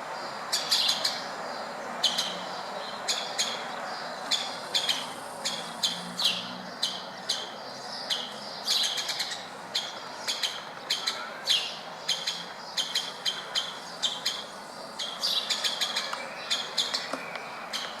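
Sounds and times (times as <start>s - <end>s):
woodpecker calls: 4.3s - 7.5s, 8.1s - 18.0s.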